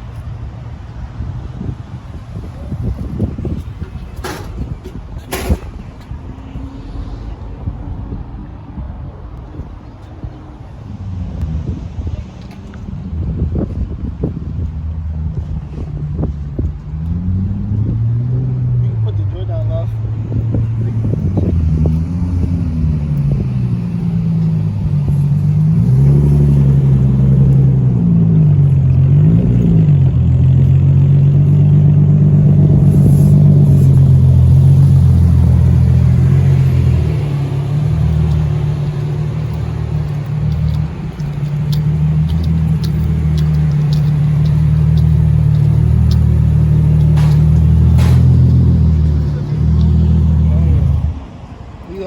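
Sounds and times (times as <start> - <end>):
car engine revving: 17.0 - 51.2.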